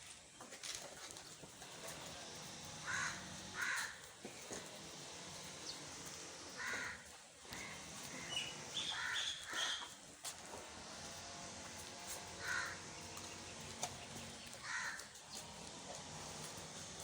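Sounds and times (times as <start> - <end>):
crows cawing: 2.8 - 4.1, 6.5 - 10.0, 12.4 - 13.2, 14.5 - 15.4.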